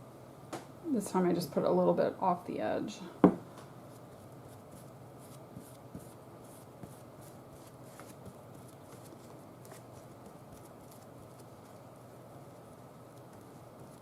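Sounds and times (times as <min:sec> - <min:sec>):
steady low hum: 0:00.0 - 0:14.0
paper rustling and brushing: 0:03.9 - 0:14.0.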